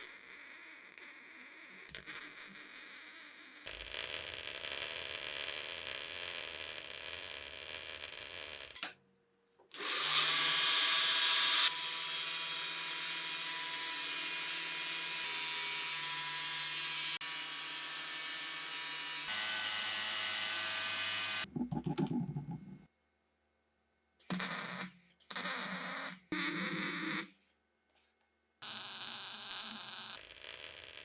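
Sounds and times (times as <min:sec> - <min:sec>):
power tool motor whine: 0:09.8 - 0:21.4.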